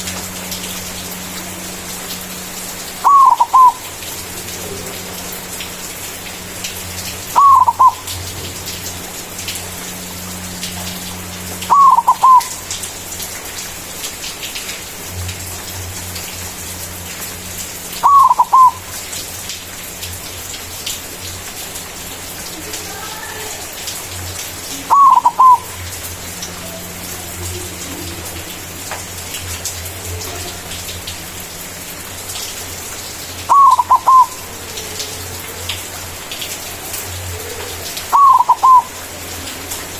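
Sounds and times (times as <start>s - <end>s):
dove cooing: 3.0s - 3.9s, 7.3s - 8.2s, 11.7s - 12.6s, 18.0s - 18.8s, 24.8s - 25.9s, 33.5s - 35.5s, 37.2s - 39.1s.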